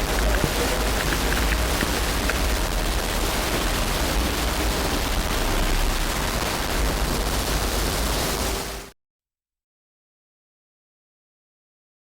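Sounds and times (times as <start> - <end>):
steady rushing noise: 0.0 - 9.0.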